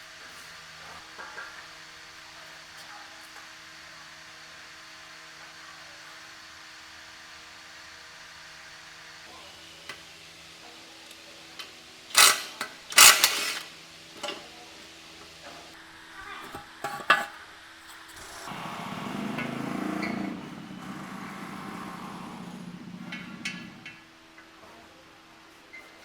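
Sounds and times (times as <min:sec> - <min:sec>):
mechanical whirr: 0:12.1 - 0:13.7
metal parts clanking: 0:12.1 - 0:14.4.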